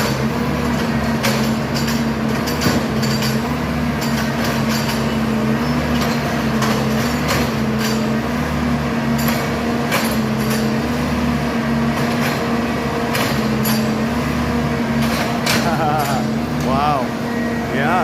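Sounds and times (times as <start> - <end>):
sharp knocks and clanks: 0.0 - 8.1, 9.1 - 10.8, 11.9 - 14.1, 15.0 - 16.8
machine engine running: 0.0 - 18.0.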